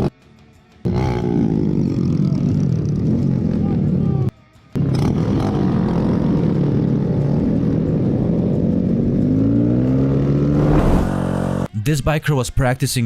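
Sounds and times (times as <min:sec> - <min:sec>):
motorcycle engine revving: 0:04.8 - 0:11.7.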